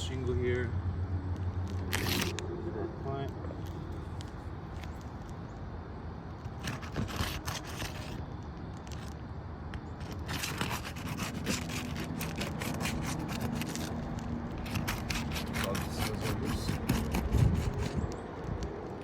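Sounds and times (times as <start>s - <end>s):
steady low hum: 0.0s - 19.0s
scraping on roof shingles: 6.5s - 8.2s, 10.0s - 18.2s.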